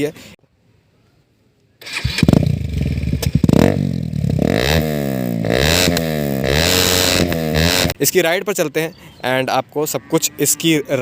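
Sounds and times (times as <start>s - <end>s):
motorcycle engine revving: 1.8s - 8.0s.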